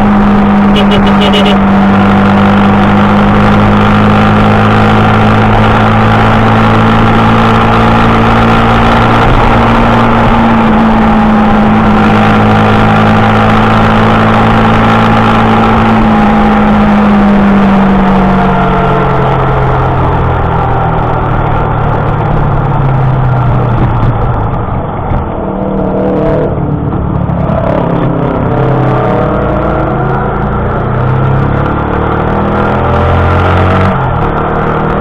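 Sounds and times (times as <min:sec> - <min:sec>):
motorcycle engine running: 0:00.0 - 0:04.0
dense rushing noise: 0:00.0 - 0:35.0.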